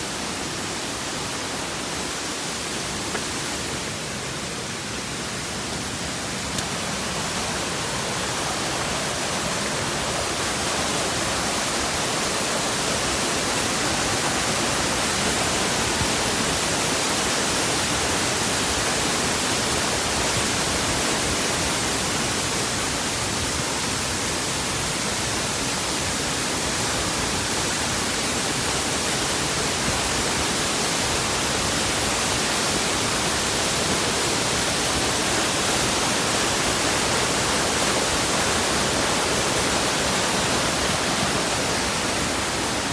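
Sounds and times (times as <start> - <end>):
waterfall roaring: 0.0 - 42.9.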